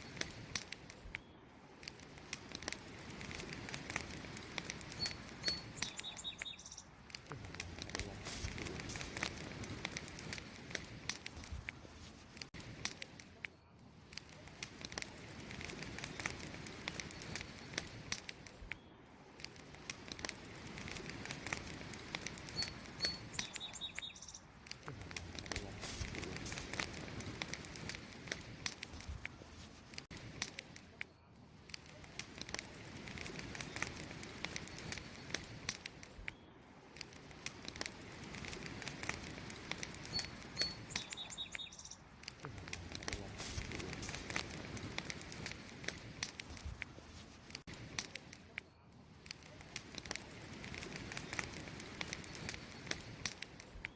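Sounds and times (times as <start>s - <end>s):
campfire crackling: 0.0s - 53.9s
faint high chirps: 4.9s - 7.0s, 22.4s - 24.5s, 40.0s - 42.1s.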